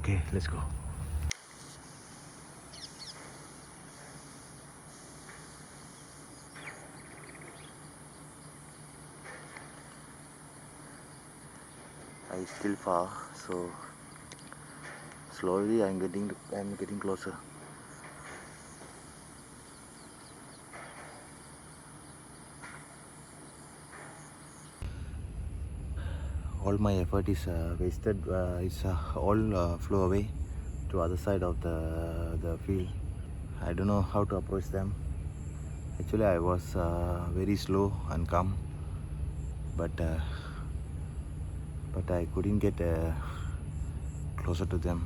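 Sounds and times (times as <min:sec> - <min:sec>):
low rumble: 0:00.0 - 0:01.3, 0:24.8 - 0:45.0
steady high-pitched hiss: 0:00.0 - 0:45.0
wild birds chirping: 0:00.0 - 0:45.0
bird trill: 0:01.7 - 0:24.8.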